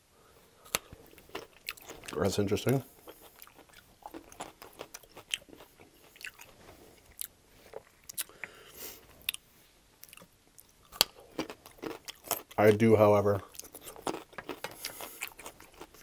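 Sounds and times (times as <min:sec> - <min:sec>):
chewing raw carrot crunches: 0:00.7 - 0:08.6, 0:10.0 - 0:12.7, 0:13.5 - 0:16.0.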